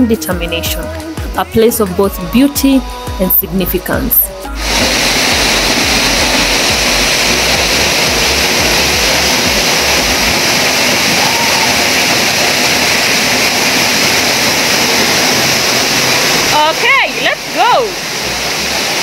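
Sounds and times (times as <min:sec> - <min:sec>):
waterfall rushing: 0:02.8 - 0:19.0
low rumble: 0:04.2 - 0:18.4.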